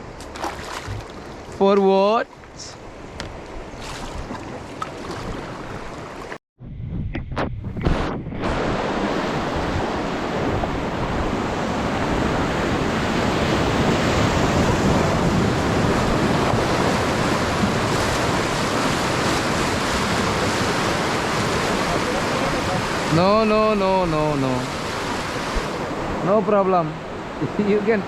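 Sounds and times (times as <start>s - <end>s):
wind on microphone: 3.1s - 26.3s
whitewater rushing: 14.0s - 28.0s.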